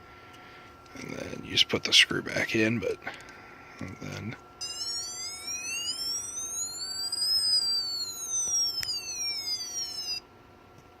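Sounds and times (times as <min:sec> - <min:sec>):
toy car electronic siren wail: 0:04.6 - 0:10.2.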